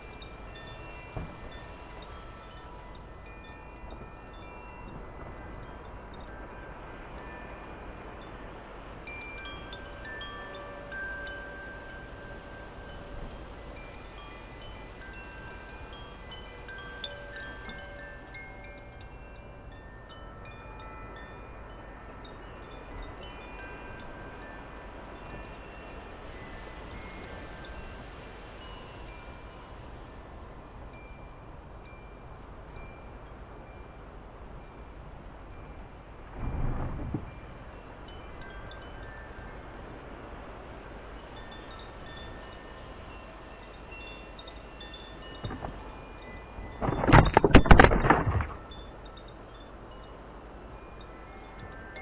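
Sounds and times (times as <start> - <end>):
wind chimes tinkling: 0.0 - 52.0
wind hiss: 0.0 - 52.0
wind rushing: 36.2 - 37.3.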